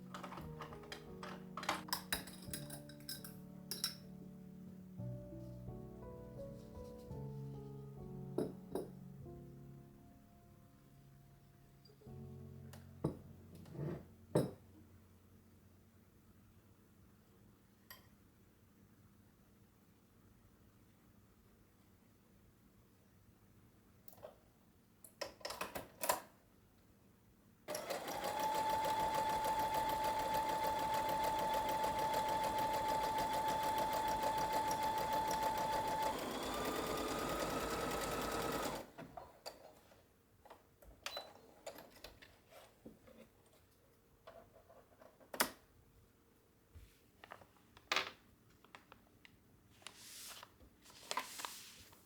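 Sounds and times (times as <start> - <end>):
sewing machine stitching: 27.7 - 39.4.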